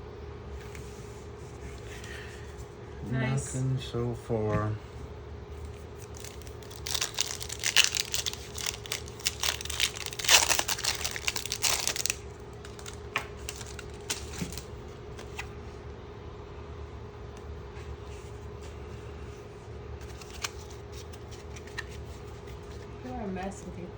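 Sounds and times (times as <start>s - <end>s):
steady hum: 0.0s - 23.9s
foil wrapper crinkling and tearing: 5.9s - 15.5s, 20.0s - 22.8s.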